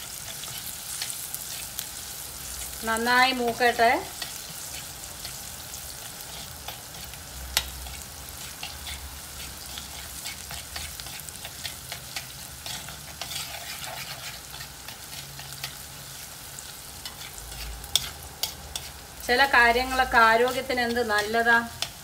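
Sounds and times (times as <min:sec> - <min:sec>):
shallots sizzling in oil: 0:00.0 - 0:22.0
steel spoon scraping a pot: 0:06.2 - 0:15.8, 0:17.0 - 0:19.0, 0:20.0 - 0:22.0.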